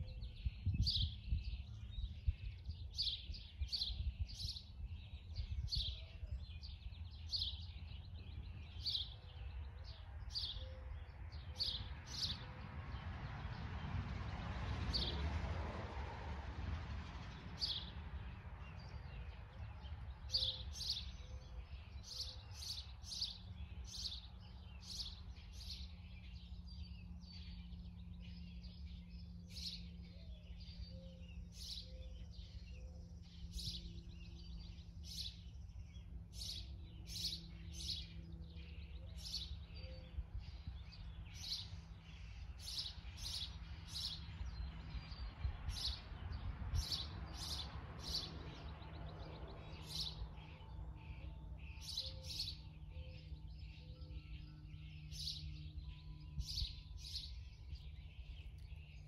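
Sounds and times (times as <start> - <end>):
small birds chirping: 0.0 - 15.2, 17.0 - 59.0.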